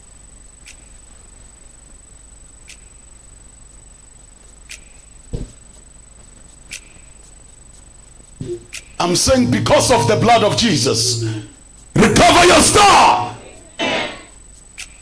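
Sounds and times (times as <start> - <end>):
faint sharp ticks: 0.6 - 1.3, 2.6 - 3.1, 4.4 - 5.3, 6.2 - 8.9, 14.6 - 15.0
sound system hum: 8.2 - 14.4.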